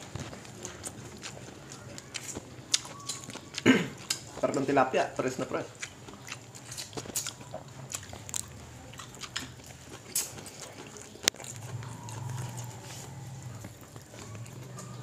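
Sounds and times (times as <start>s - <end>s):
chewing and lip-smacking: 0.0s - 15.0s
low steady hum: 11.2s - 15.0s.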